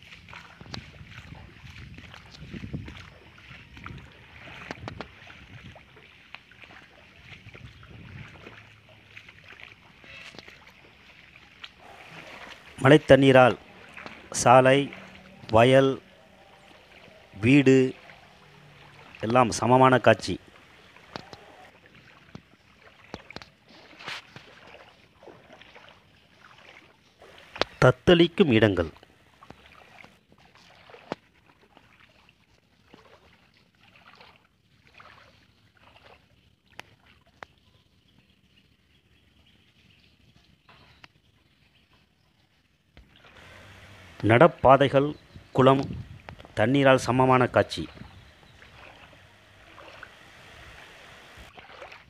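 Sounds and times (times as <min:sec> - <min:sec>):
water dripping and splashing: 0:00.0 - 0:38.3, 0:40.0 - 0:52.0
wind rumbling on microphone: 0:00.5 - 0:06.0, 0:06.7 - 0:08.7, 0:43.3 - 0:51.5
rain falling: 0:11.8 - 0:21.7, 0:43.3 - 0:51.5
low hiss: 0:43.2 - 0:51.5.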